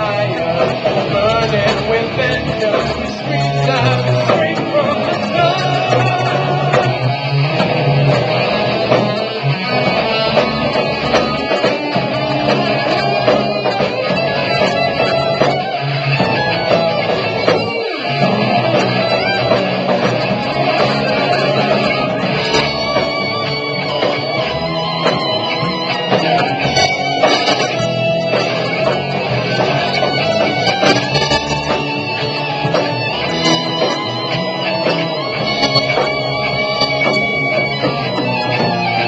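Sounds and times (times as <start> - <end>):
electric guitar: 0.0 - 39.0
rock band playing: 0.0 - 39.0.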